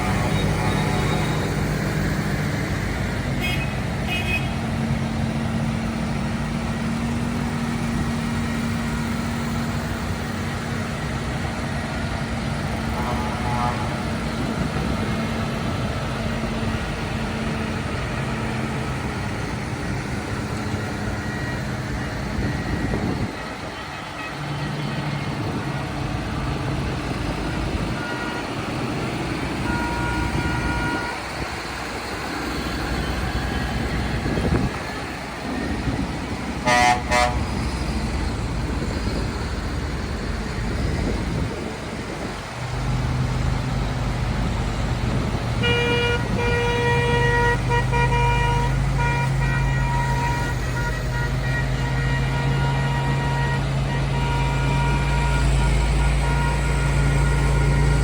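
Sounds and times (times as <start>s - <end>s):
tractor diesel engines running: 0.0s - 58.0s
vehicle horn: 3.4s - 4.6s, 12.9s - 14.2s, 27.9s - 28.5s, 29.6s - 31.4s, 36.6s - 37.6s, 45.6s - 58.0s.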